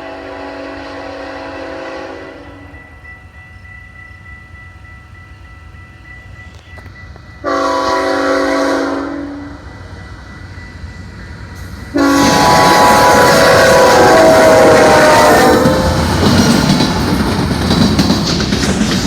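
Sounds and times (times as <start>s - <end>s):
locomotive air horn blast: 0.0s - 2.6s, 7.4s - 9.6s, 11.9s - 16.3s
train rumbling: 0.0s - 19.0s.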